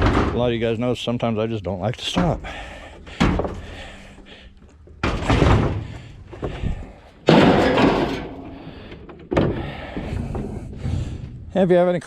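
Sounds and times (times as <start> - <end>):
heavy bangs: 5.0 - 11.7.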